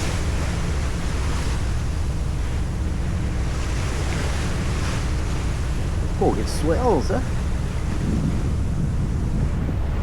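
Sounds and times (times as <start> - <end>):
steady low rumble: 0.0 - 10.0
wash of the sea: 0.0 - 10.0
wind rushing over microphone: 2.9 - 10.0.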